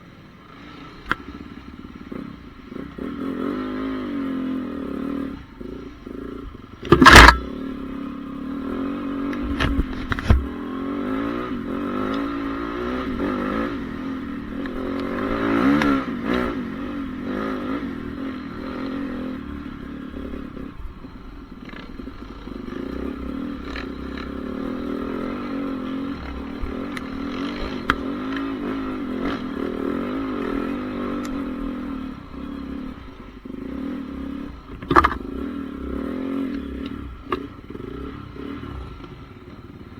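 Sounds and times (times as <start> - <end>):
motorbike engine running: 0.0 - 39.9
loud thump: 6.8 - 7.5.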